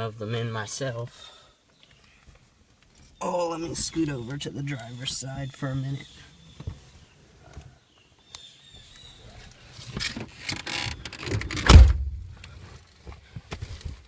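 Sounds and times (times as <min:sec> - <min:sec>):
heavy thump: 0:11.4 - 0:12.5.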